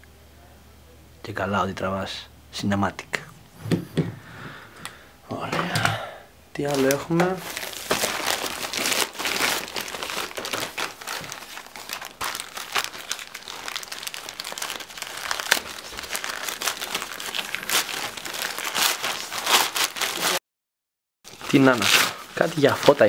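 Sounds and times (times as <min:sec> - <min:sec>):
plastic packaging crinkling: 0:06.6 - 0:20.4, 0:21.3 - 0:23.0.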